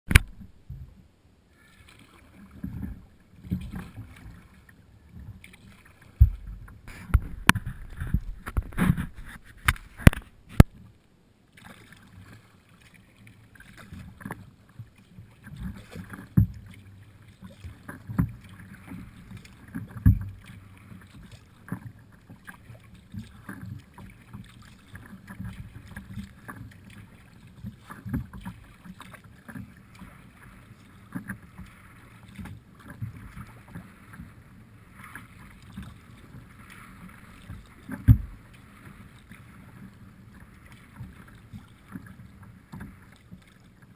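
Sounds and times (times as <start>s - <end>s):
water sloshing from paddle strokes: 0.1s - 43.9s
low thumps: 6.2s - 10.7s.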